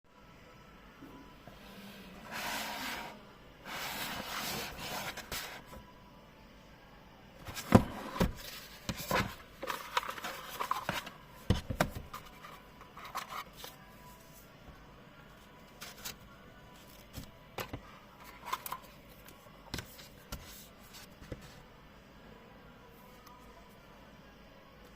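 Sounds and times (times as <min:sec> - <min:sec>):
packaging rubbing and scraping: 0:07.5 - 0:11.1.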